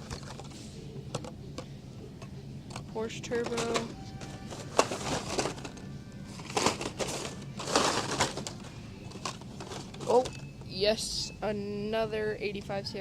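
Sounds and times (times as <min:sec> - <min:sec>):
plastic packs crinkling and clacking: 0:00.0 - 0:00.5, 0:03.4 - 0:10.4.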